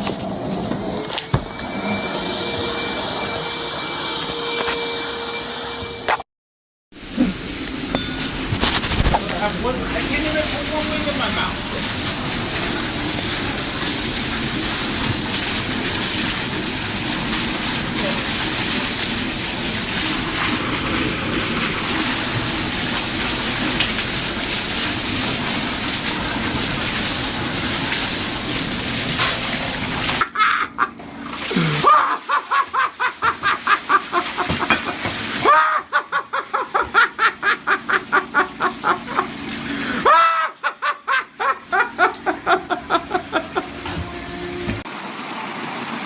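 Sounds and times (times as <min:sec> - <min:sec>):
water gushing: 0:00.0 - 0:05.8, 0:07.0 - 0:46.0
rising-and-falling tones: 0:00.0 - 0:06.2, 0:41.9 - 0:44.8.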